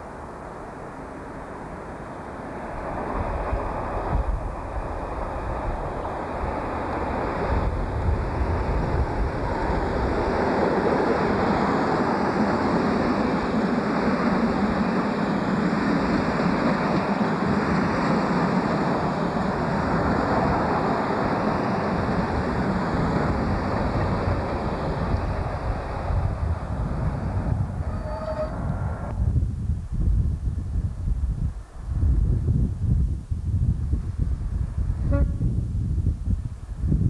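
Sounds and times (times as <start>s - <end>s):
train wheels rolling on rails: 0.0s - 29.3s
diesel locomotive deep rumble: 0.0s - 37.0s.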